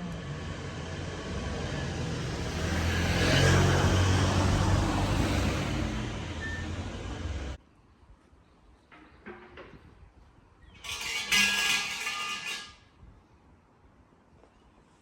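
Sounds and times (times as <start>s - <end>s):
vehicle engine: 0.0s - 7.6s
road noise: 0.0s - 7.7s.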